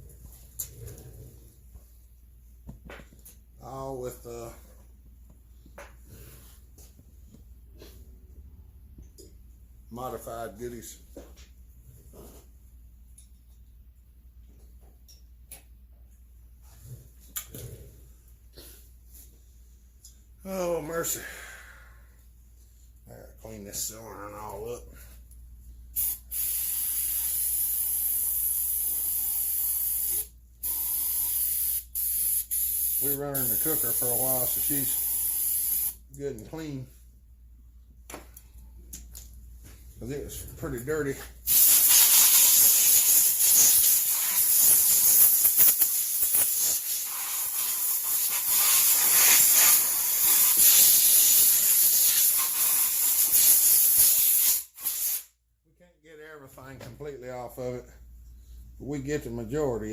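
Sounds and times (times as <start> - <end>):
cleaning jet hissing: 41.5 - 55.2.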